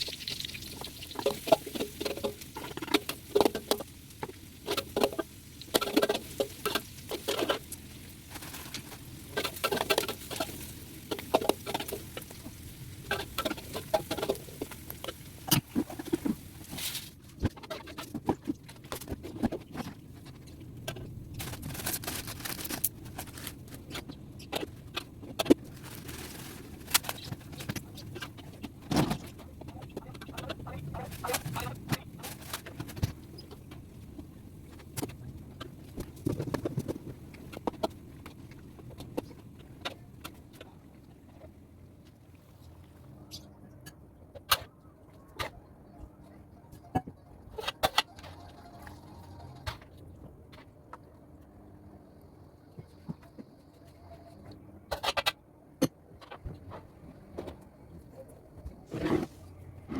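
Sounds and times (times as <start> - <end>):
kitchen utensils clinking and scraping: 4.6 - 12.4.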